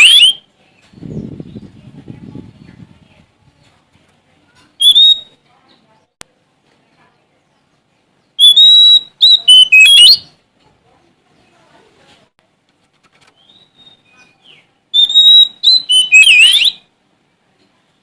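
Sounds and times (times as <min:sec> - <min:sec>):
bird singing clear whistles: 0:00.0 - 0:01.6, 0:04.8 - 0:05.4, 0:08.3 - 0:10.4, 0:13.3 - 0:16.9.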